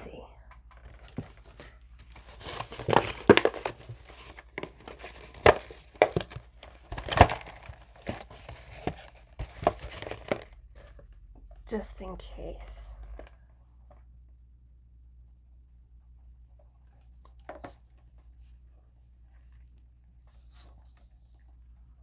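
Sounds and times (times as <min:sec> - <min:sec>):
paper packaging crinkling: 0:00.7 - 0:11.0.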